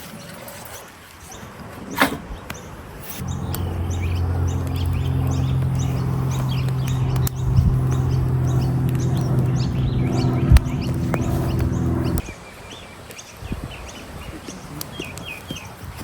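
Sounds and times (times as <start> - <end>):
birds chirping: 3.2 - 12.3
steady low hum: 3.2 - 12.3.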